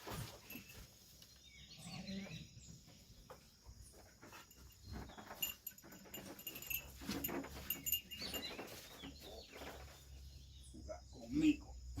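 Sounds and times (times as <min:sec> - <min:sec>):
small livestock bleating: 0:01.8 - 0:02.4
sharp clicks and clinks: 0:04.5 - 0:08.7.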